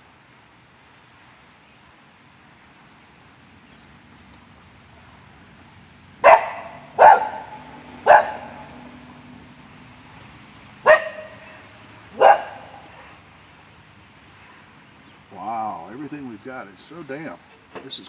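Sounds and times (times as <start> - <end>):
dog barking: 6.2 - 8.8, 10.8 - 13.2.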